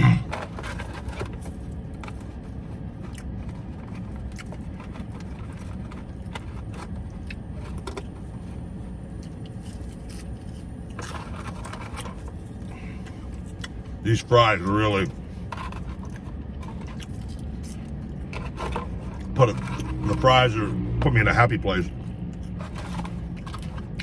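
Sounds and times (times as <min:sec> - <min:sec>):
person talking: 0:00.0 - 0:00.4, 0:14.0 - 0:15.2, 0:19.3 - 0:22.0
person chewing food: 0:00.0 - 0:14.0, 0:15.2 - 0:20.1, 0:21.9 - 0:24.0
paper rustling: 0:21.7 - 0:24.0.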